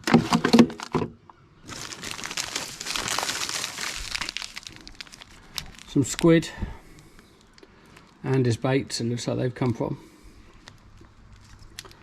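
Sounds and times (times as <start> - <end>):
plastic packaging crinkling: 1.6 - 8.4, 10.6 - 12.0.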